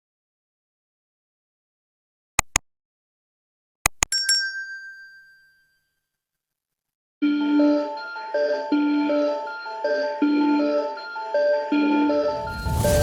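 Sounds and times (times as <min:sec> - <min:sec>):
music: 0:07.2 - 0:13.0.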